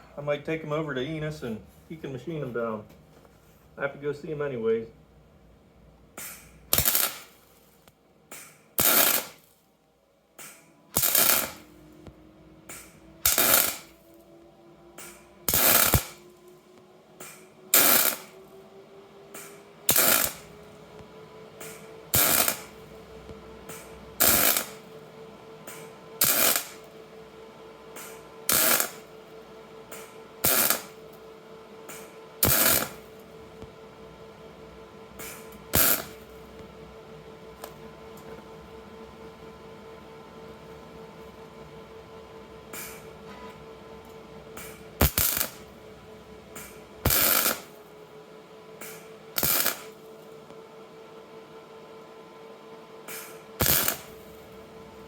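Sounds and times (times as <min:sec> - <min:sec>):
faint rising tone: 0:11.6 - 0:26.2.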